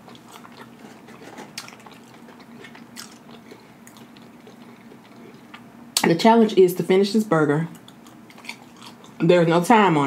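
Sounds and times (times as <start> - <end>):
person chewing food: 0.0 - 5.7, 7.8 - 9.2.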